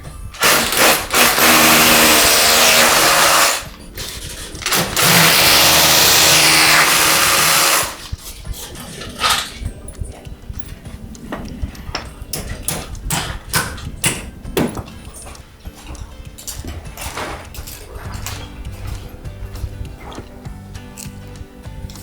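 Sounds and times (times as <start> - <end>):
power tool whirring: 0.4 - 8.2.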